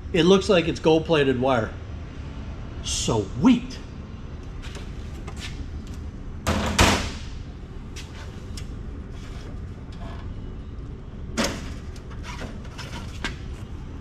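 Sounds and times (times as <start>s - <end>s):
circuit boards scraping on metal rack: 8.0s - 10.4s, 11.4s - 13.7s.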